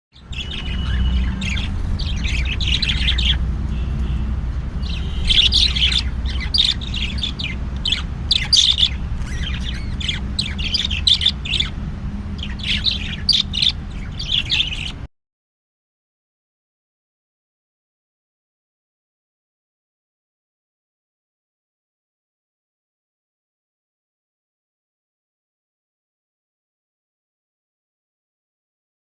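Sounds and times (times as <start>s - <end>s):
budgerigars chirping: 0.2s - 15.1s.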